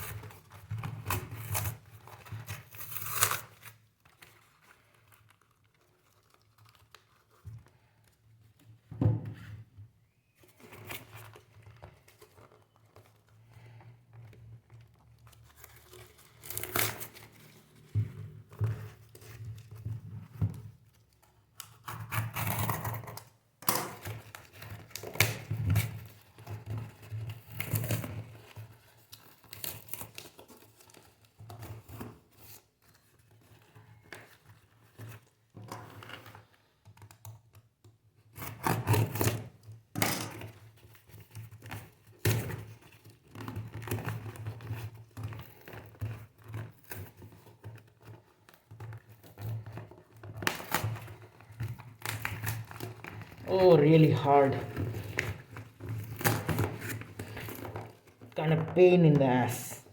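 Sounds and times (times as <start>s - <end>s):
packaging tearing and crinkling: 0.0s - 7.4s, 15.2s - 17.9s, 27.3s - 32.0s, 49.4s - 53.5s.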